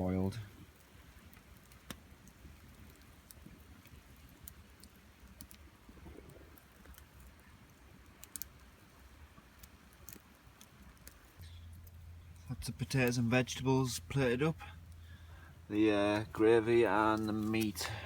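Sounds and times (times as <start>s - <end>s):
pots boiling: 0.0s - 18.0s
wood fire crackling: 0.0s - 18.0s
low steady rumble: 11.2s - 18.0s.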